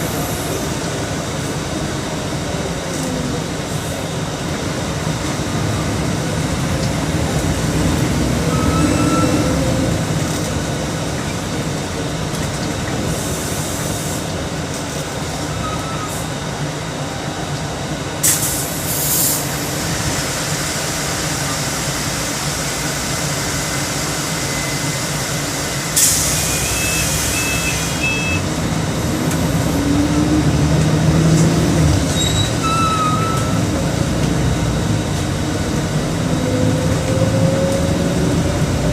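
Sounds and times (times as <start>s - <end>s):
diesel bus engine running: 0.0s - 38.9s
compressed air hisses: 18.2s - 21.0s, 26.0s - 28.0s.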